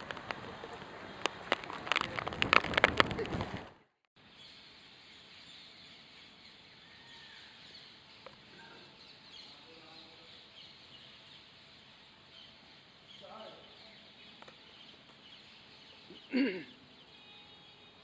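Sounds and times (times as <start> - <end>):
loud crackling: 0.0 - 3.9
soft bird chirps: 4.2 - 18.0.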